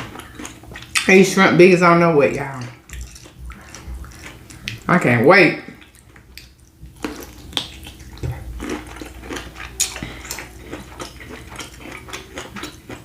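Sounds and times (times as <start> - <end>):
wet squelching: 2.7 - 4.9.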